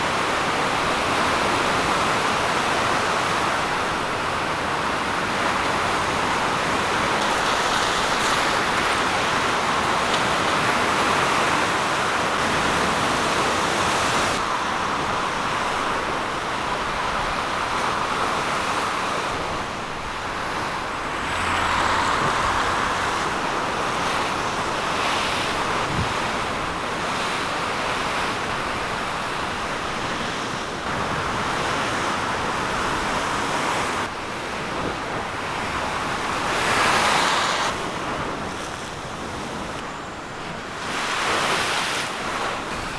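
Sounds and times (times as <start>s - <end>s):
turbulent water rushing: 0.0s - 30.1s
wind on microphone: 3.0s - 34.0s.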